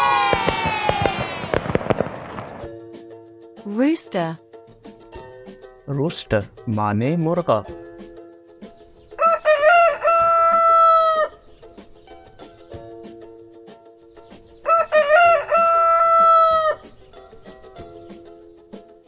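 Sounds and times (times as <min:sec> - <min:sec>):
rooster crowing: 0:00.0 - 0:02.0, 0:09.2 - 0:11.4, 0:14.7 - 0:16.8.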